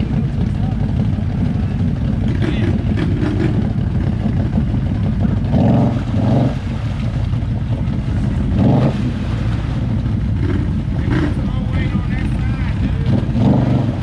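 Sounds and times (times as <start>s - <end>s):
atv engine running and revving: 0.0s - 14.0s.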